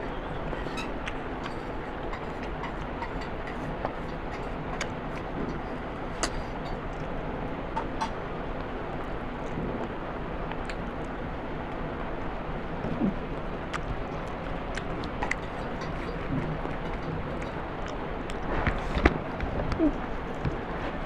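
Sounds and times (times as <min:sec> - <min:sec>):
person eating with mouth clicks: 0:12.8 - 0:20.6.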